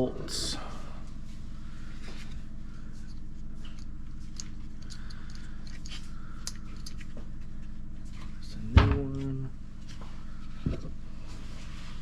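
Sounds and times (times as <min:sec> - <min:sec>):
steady low hum: 0:00.0 - 0:12.0
small clicks of parts handled: 0:03.7 - 0:07.2.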